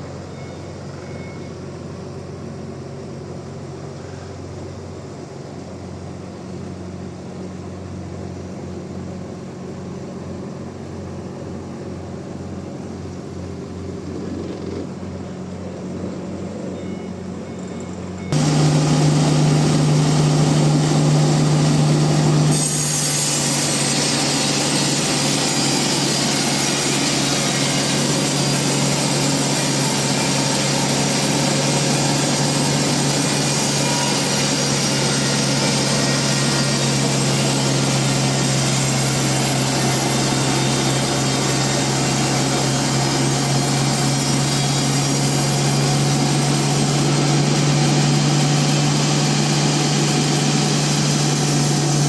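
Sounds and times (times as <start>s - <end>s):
band saw machine hum: 18.3s - 52.0s
saw blade cutting wood: 18.3s - 52.0s.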